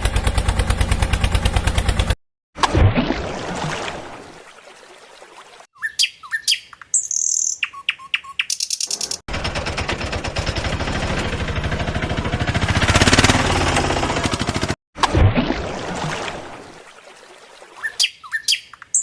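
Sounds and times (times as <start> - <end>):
bird-like chirps: 5.7 - 9.3, 17.7 - 19.0
fast mechanical rattle: 9.3 - 14.8.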